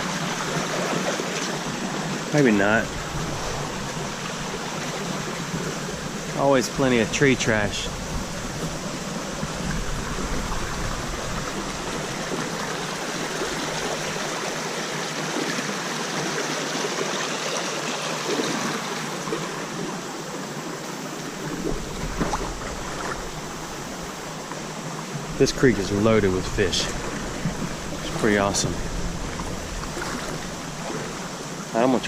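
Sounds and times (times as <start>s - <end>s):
creek water rushing: 0.0s - 32.0s.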